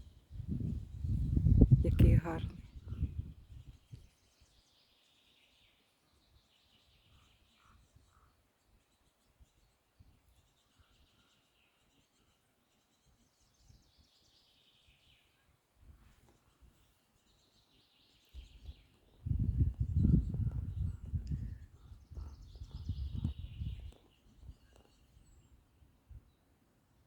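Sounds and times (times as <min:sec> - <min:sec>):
low rumble on microphone: 0:00.0 - 0:04.0, 0:19.2 - 0:24.5
distant birds chirping: 0:01.9 - 0:26.6.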